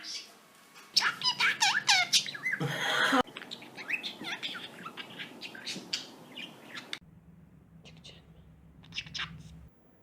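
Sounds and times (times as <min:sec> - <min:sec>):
budgerigar chirping and warbling: 0:01.0 - 0:02.6, 0:03.4 - 0:07.0, 0:08.8 - 0:09.7.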